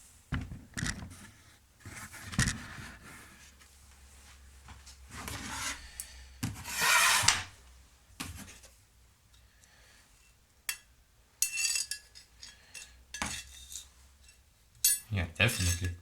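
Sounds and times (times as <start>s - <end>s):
threaded rod scraping metal: 6.7s - 7.5s.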